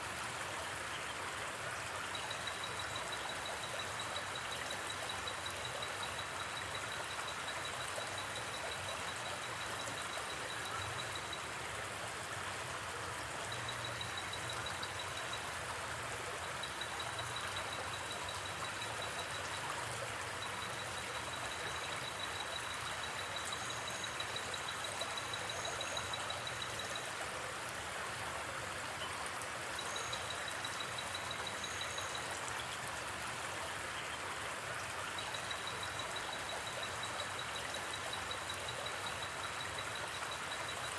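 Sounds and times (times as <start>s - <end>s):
river flowing: 0.0s - 40.9s
insect trill: 2.1s - 11.4s, 13.5s - 15.6s, 16.3s - 27.1s, 29.8s - 32.4s, 35.2s - 40.9s.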